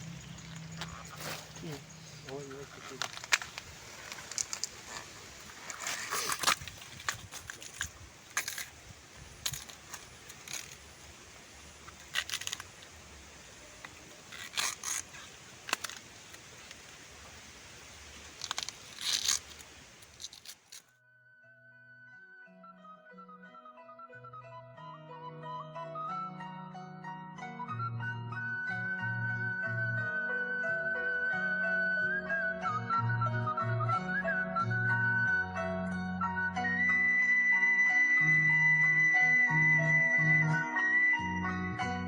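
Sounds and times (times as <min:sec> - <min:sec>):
crunchy chewing: 0:00.0 - 0:08.8, 0:09.4 - 0:10.9, 0:11.8 - 0:13.0, 0:13.8 - 0:16.8, 0:18.3 - 0:20.9
music with mallet-like notes: 0:21.4 - 0:42.0.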